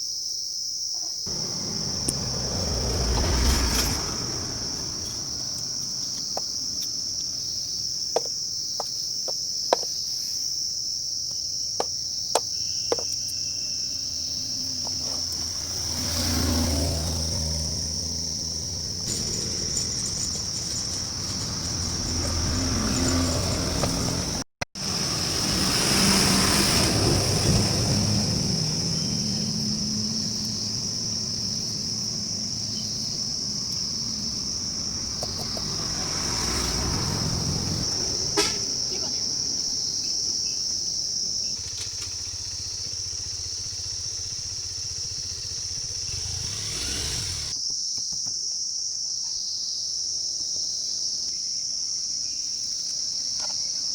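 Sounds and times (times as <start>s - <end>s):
insects chirring: 0.0s - 53.9s
low vehicle rumble: 1.3s - 7.4s, 14.0s - 47.6s.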